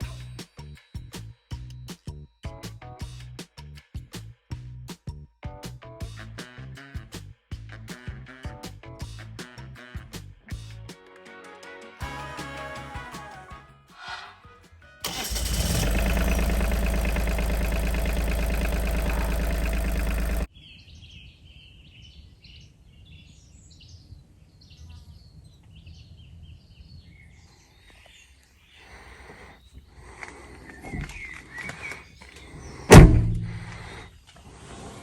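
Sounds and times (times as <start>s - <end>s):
engine rumbling: 15.0s - 20.5s, 32.9s - 34.1s.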